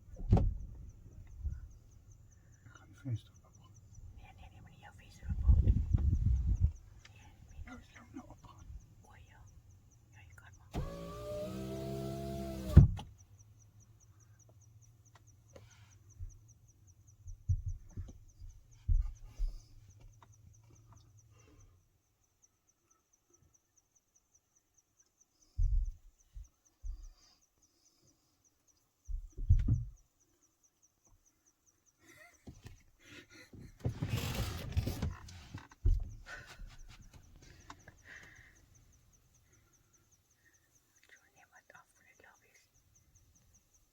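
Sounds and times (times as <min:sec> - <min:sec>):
cricket chirping: 0:00.0 - 0:10.7, 0:13.0 - 0:33.8, 0:35.1 - 0:43.9
dull low thumps and knocks: 0:05.2 - 0:06.9, 0:17.2 - 0:19.7, 0:25.6 - 0:27.2, 0:29.1 - 0:30.1, 0:35.8 - 0:37.2.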